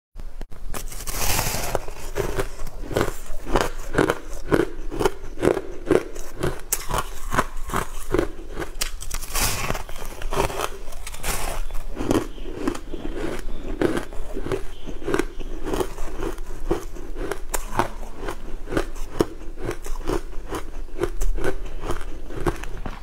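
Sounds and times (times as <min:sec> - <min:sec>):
person biting cake: 0:00.7 - 0:23.0
person chewing: 0:00.8 - 0:23.0.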